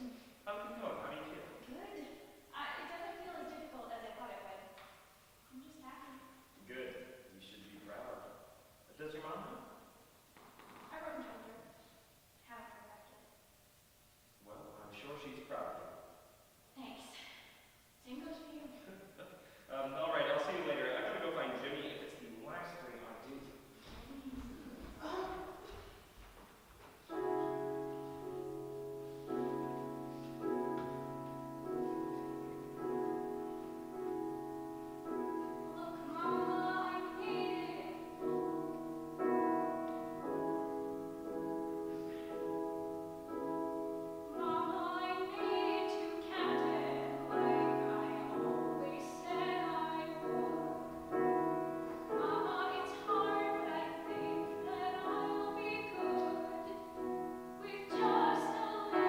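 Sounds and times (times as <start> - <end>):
piano chords: 27.1 - 59.0
person singing: 35.8 - 38.0, 44.3 - 50.6, 52.1 - 56.9, 57.6 - 59.0.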